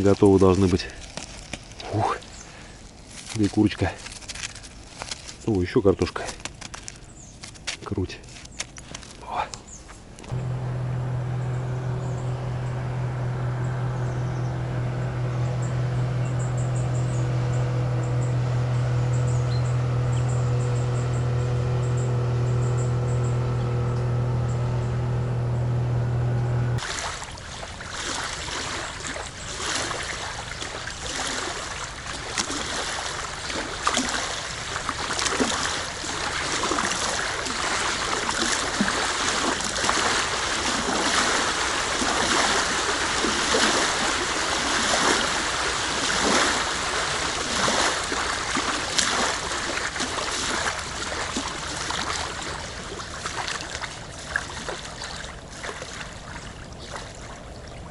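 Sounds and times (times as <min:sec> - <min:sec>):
steady low hum: 0:10.2 - 0:26.8.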